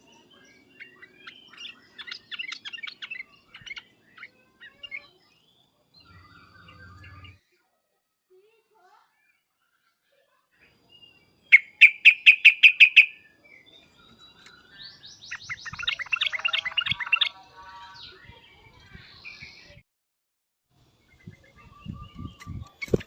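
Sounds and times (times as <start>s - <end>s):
bulbul chattering: 0.8s - 5.2s, 11.5s - 13.3s, 14.9s - 17.4s
bulbul sharp calling notes: 11.5s - 13.2s.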